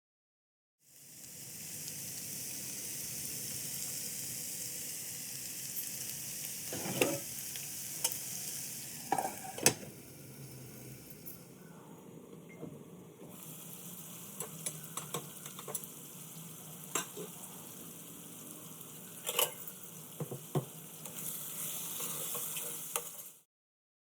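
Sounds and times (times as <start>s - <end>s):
food sizzling in a pan: 0.8s - 23.5s
spoon scraping against a pan: 6.7s - 7.3s, 9.1s - 9.8s, 19.0s - 19.9s, 20.6s - 23.2s.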